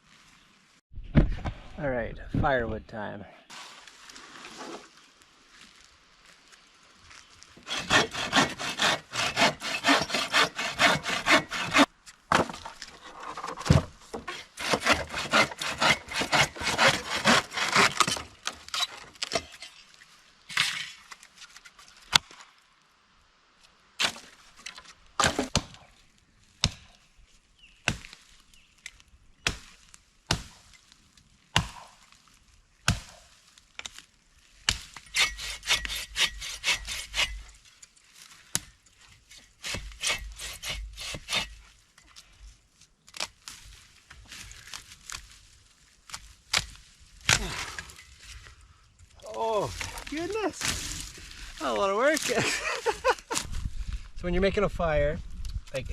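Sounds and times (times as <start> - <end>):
hand saw cutting wood: 7.6 - 19.4, 35.0 - 37.6, 39.3 - 41.6.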